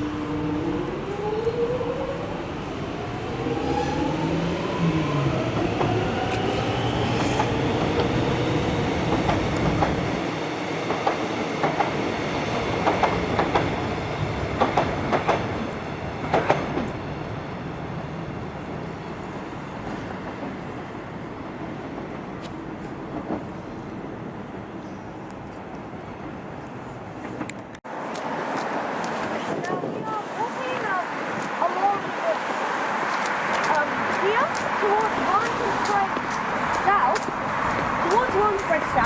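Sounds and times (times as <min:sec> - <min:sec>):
train traction motors whining: 0:00.0 - 0:10.3, 0:31.6 - 0:39.0
train wheels clacking on rail joints: 0:05.4 - 0:10.2, 0:10.9 - 0:17.0, 0:33.1 - 0:39.0.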